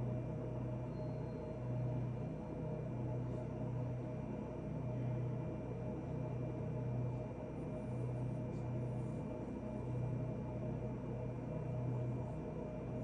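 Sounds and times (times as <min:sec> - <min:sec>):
low pulsing hum: 0:00.0 - 0:13.0.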